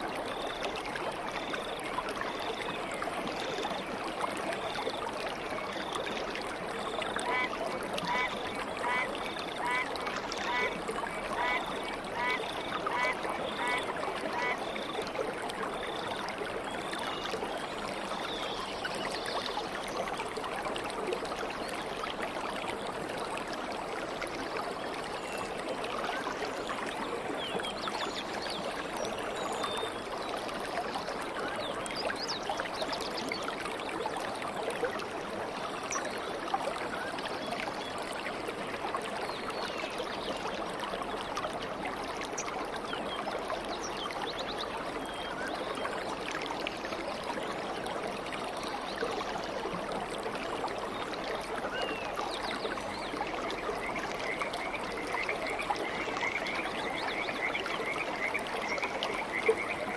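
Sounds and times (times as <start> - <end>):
stream water babbling: 0.0 - 59.9.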